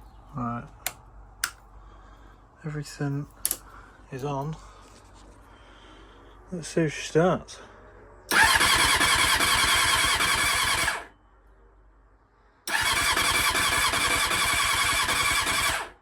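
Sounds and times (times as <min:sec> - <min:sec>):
motorcycle engine cranking: 0:08.3 - 0:11.0, 0:12.7 - 0:15.8.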